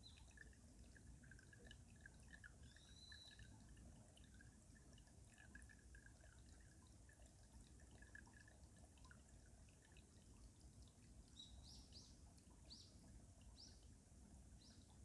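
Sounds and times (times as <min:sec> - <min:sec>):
stream trickling and dripping: 0:00.0 - 0:15.0
small bird chirping: 0:02.6 - 0:03.5.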